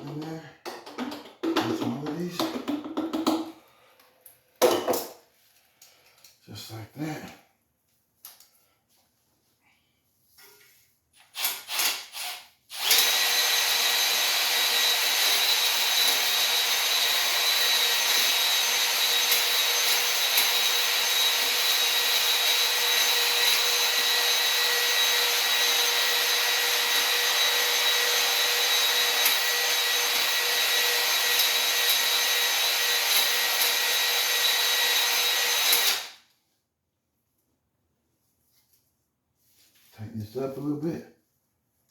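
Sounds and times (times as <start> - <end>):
electric drill spinning: 11.3 - 36.2.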